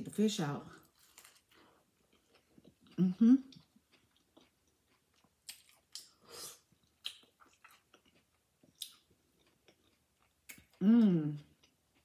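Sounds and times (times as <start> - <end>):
crunchy taco chewing: 0.8 - 12.0.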